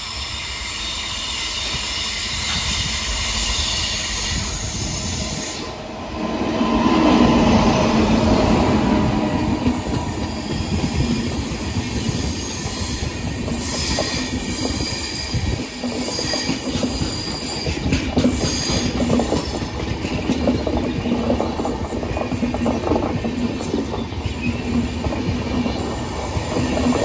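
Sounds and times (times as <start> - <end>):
train wheels clattering over rails: 1.4 - 27.0
high wheel squeal: 9.7 - 19.8.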